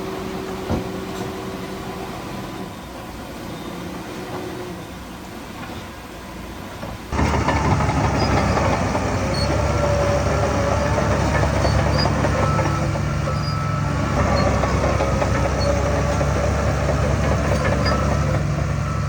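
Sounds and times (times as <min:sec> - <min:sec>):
heavy diesel machinery running: 0:07.1 - 0:19.0
thin squeaks: 0:08.0 - 0:18.4.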